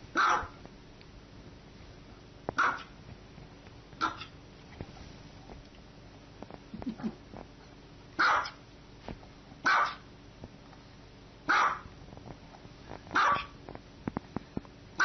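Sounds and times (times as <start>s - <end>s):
small dog barking: 0.1s - 0.6s, 2.6s - 3.0s, 4.0s - 4.4s, 8.2s - 8.6s, 9.6s - 10.1s, 11.5s - 11.9s, 13.1s - 13.6s.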